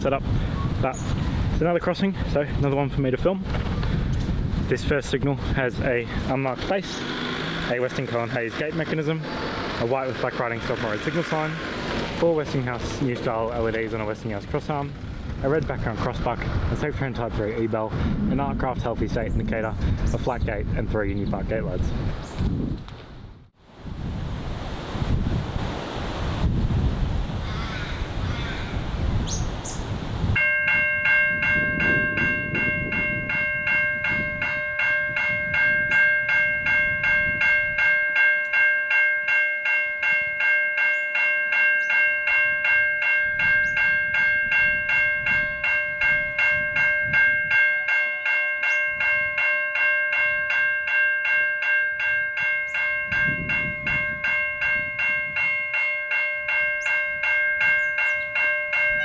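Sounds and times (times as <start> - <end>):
wind rumble on microphone: 0.0 - 38.0, 42.4 - 47.9, 48.8 - 49.5, 52.2 - 55.8, 56.8 - 59.0
level crossing bells ringing: 6.3 - 14.3, 30.4 - 59.0.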